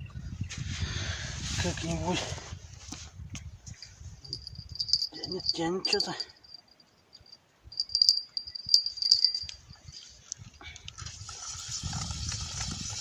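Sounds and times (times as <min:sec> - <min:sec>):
low rumbling handling noise: 0:03.8 - 0:06.6
fishing tackle clinking and rattling: 0:03.8 - 0:10.1
crickets chirping: 0:04.2 - 0:10.2.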